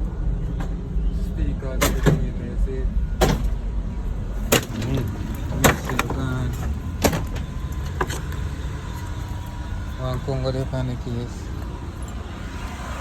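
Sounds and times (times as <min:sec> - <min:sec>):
low engine rumble: 0:00.0 - 0:13.0
sharp metal knocks: 0:04.4 - 0:08.5.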